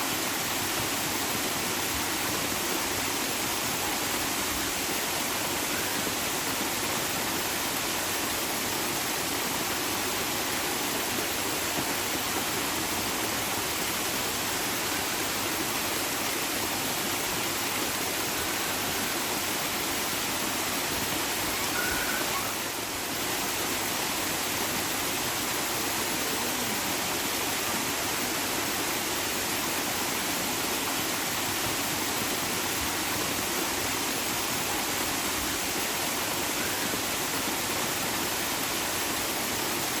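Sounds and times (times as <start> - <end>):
running water rushing: 0.0 - 40.0.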